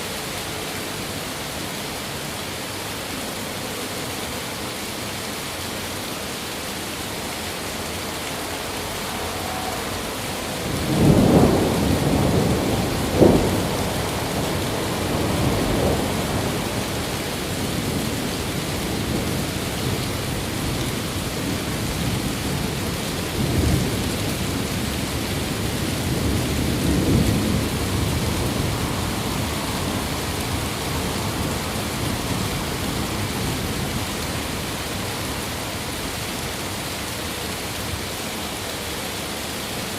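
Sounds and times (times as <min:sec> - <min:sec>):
steady rain: 0:00.0 - 0:39.9
thunder rumbling and cracking: 0:09.7 - 0:36.2.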